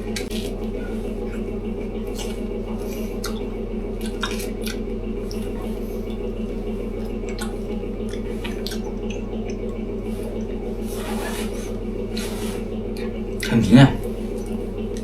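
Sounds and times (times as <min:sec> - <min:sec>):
low mechanical hum: 0:00.0 - 0:15.0
short rustle: 0:05.2 - 0:14.8.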